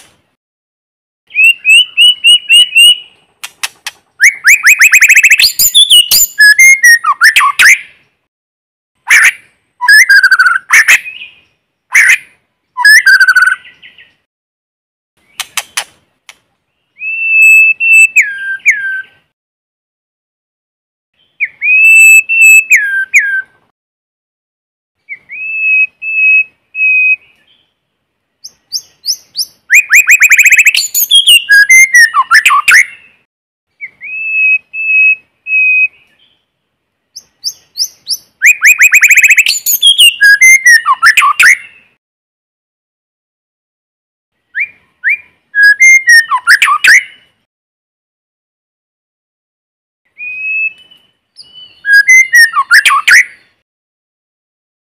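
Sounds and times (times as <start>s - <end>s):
bird singing whistles and trills: 1.3s - 3.2s, 4.2s - 8.1s, 9.1s - 14.2s, 16.7s - 19.3s, 21.2s - 23.6s, 25.0s - 27.8s, 28.4s - 36.4s, 37.1s - 42.0s, 44.5s - 47.3s, 50.1s - 53.6s.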